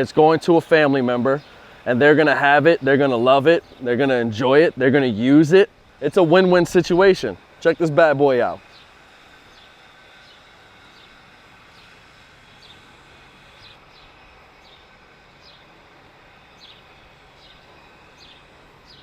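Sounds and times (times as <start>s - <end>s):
small bird chirping: 0.0s - 4.8s, 8.6s - 15.7s, 16.4s - 19.0s
quiet outdoor background noise: 0.0s - 19.0s.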